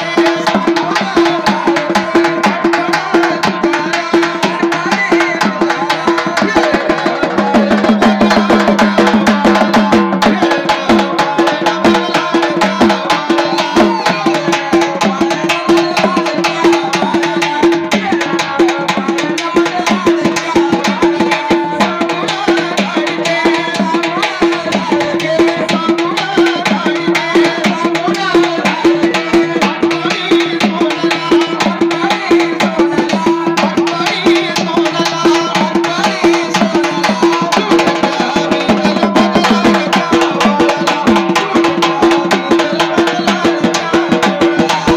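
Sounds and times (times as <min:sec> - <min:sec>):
hand percussion beat: 0:00.0 - 0:44.9.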